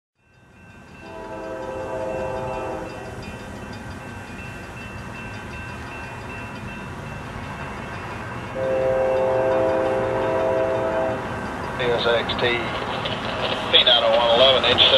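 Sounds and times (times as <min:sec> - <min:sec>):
locomotive air horn blasts: 0:01.0 - 0:03.2, 0:08.6 - 0:11.3.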